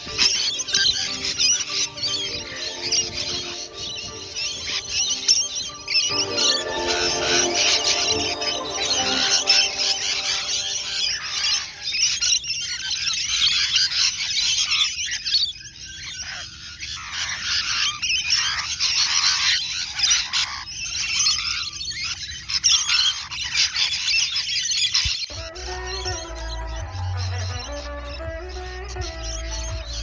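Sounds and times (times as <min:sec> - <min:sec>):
parrots squawking: 0:00.0 - 0:12.4, 0:25.4 - 0:30.0.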